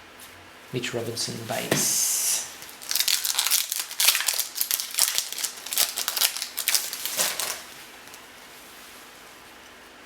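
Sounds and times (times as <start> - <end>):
card pack crinkling: 1.5 - 8.3.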